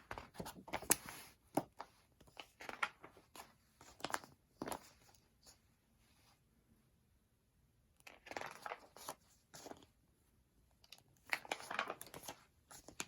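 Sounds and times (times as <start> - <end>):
pages of a book turning: 0.0 - 5.6, 8.0 - 9.9, 10.8 - 13.0.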